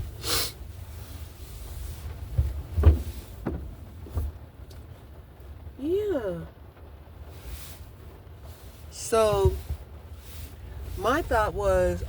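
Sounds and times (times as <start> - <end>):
car engine low rumble: 0.0 - 12.0
clunks and knocks in car: 2.1 - 4.5.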